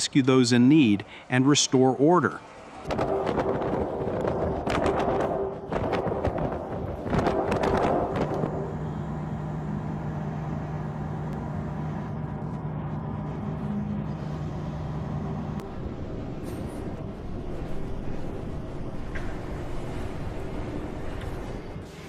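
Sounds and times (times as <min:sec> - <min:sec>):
outdoor street noise: 0:00.0 - 0:22.0
vehicle engine hum: 0:02.1 - 0:22.0
rushing wind gusts: 0:02.8 - 0:09.0.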